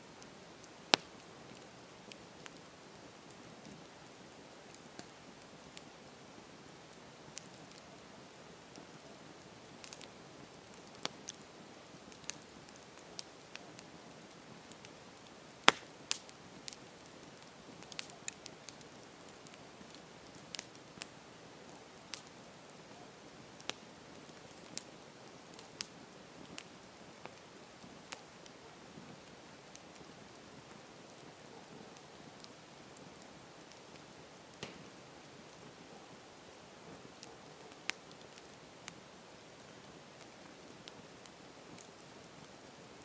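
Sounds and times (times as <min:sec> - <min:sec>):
campfire crackling: 0:00.0 - 0:43.0.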